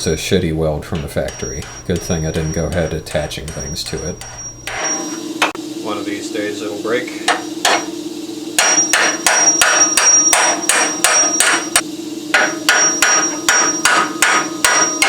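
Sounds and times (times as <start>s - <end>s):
hammer blows on steel: 0.9s - 5.0s, 8.6s - 15.0s.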